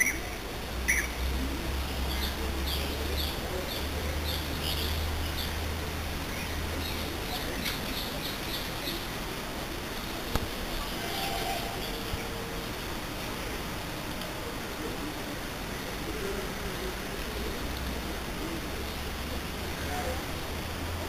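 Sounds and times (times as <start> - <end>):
small birds chirping: 2.0 - 9.2.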